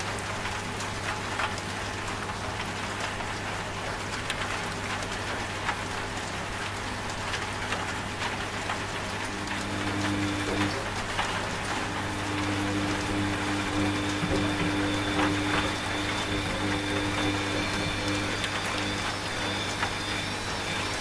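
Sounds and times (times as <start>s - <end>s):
steady rain falling: 0.0s - 21.0s
washing machine humming: 0.0s - 21.0s
higher machine tone: 9.1s - 21.0s.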